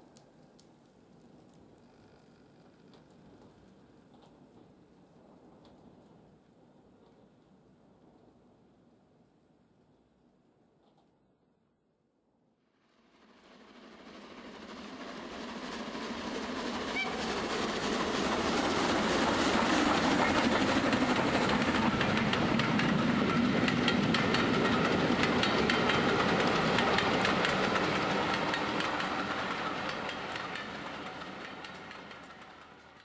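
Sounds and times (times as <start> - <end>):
train wheels clicking on rails: 0.0 - 6.4, 13.3 - 33.0.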